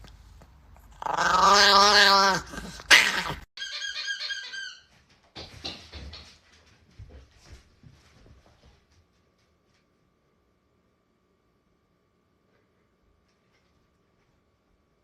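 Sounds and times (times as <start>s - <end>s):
dog whining: 0.9s - 4.9s.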